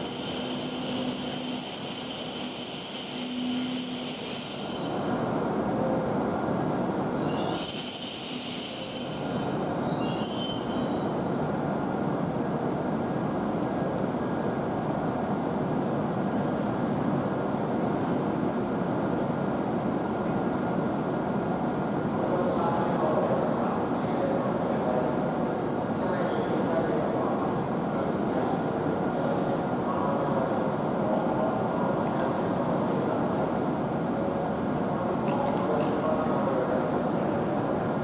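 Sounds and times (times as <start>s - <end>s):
train brakes squealing: 0.0s - 6.1s, 7.0s - 11.6s
train rumble and hiss: 0.0s - 38.0s.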